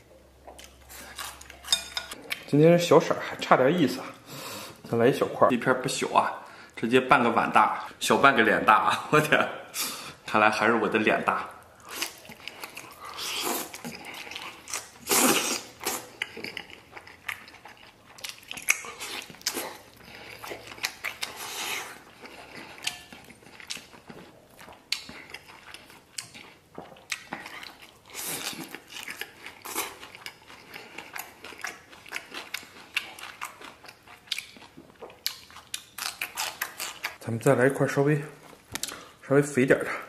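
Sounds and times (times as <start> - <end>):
person chewing with wet clicks: 0.4 - 2.6, 11.6 - 37.2, 38.4 - 39.2.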